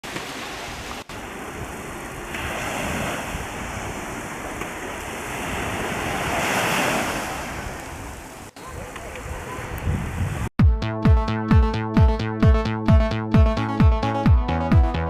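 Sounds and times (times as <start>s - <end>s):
sea waves washing onto shore: 0.0s - 10.5s
wind on microphone: 0.5s - 10.6s.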